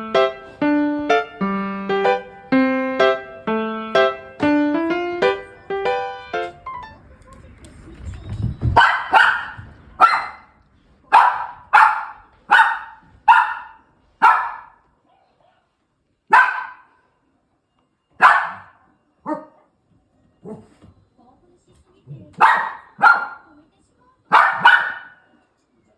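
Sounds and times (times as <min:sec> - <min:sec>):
small dog barking: 0:08.8 - 0:14.8, 0:16.3 - 0:16.9, 0:18.2 - 0:19.7, 0:22.4 - 0:23.5, 0:24.3 - 0:25.3.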